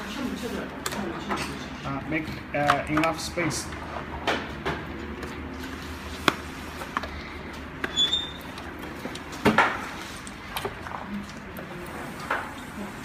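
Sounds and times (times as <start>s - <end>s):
brief squeak: 7.9s - 8.4s.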